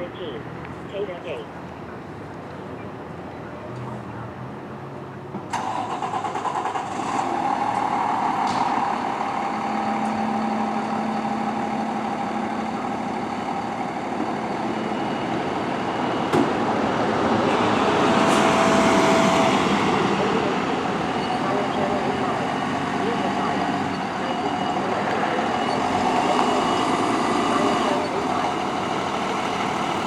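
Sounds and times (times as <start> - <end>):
diesel engine under load: 3.9 - 30.0.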